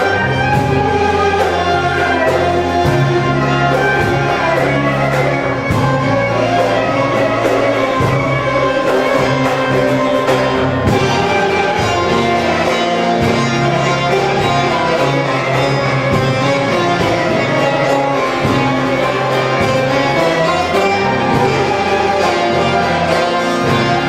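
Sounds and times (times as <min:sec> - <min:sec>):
folk ensemble playing: 0:00.0 - 0:24.0
string instruments playing melody: 0:00.0 - 0:24.0.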